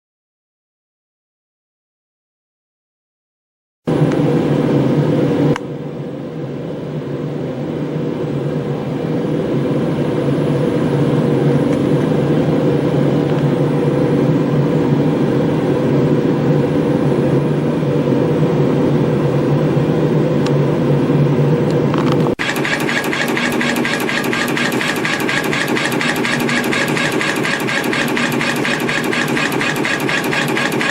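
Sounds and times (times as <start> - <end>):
spring coiling machine hum: 20.9 - 30.9.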